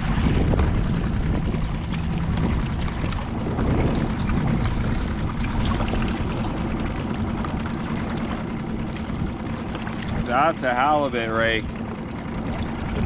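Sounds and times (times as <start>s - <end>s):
boat engine running: 0.0s - 13.0s
water lapping against hull: 0.0s - 13.0s.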